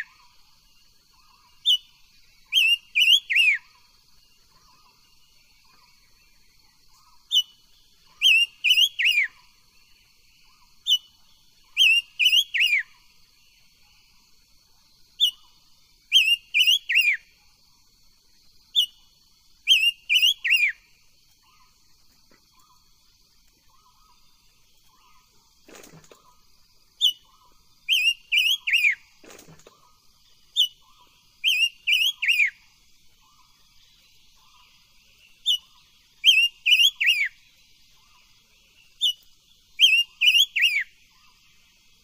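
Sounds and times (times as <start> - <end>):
bird whistled phrase: 27.9 - 29.0, 31.4 - 32.6, 36.2 - 37.3, 39.8 - 40.9.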